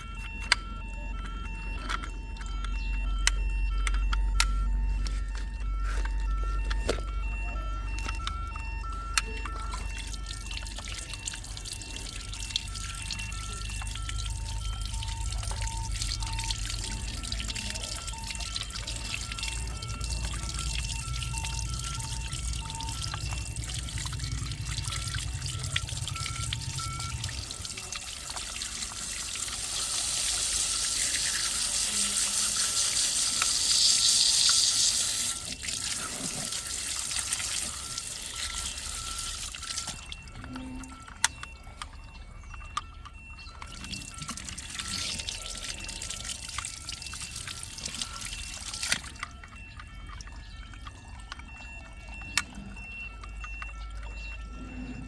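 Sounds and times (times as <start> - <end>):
water trickling and dripping: 0.0 - 55.0
running water splashing: 10.2 - 40.1.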